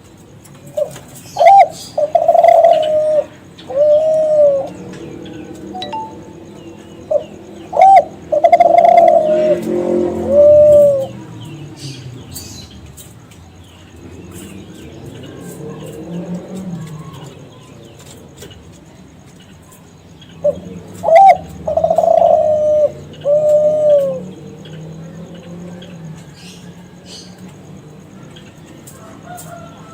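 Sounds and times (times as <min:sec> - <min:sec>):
small birds chirping: 0:00.0 - 0:29.9
dove cooing: 0:00.7 - 0:06.4, 0:07.0 - 0:11.4, 0:20.4 - 0:27.2.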